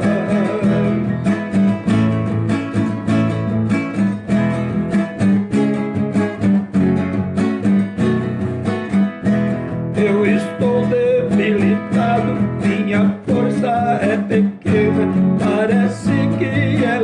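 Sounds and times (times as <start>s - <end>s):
person singing: 0.0s - 1.4s, 9.9s - 17.0s
acoustic guitar strumming: 0.0s - 17.0s.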